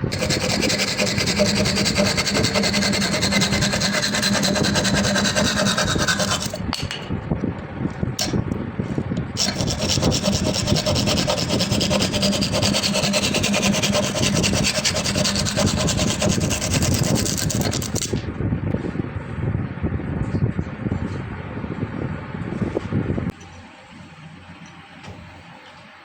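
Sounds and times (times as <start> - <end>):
tool rasping wood: 0.0 - 6.9, 9.4 - 18.2.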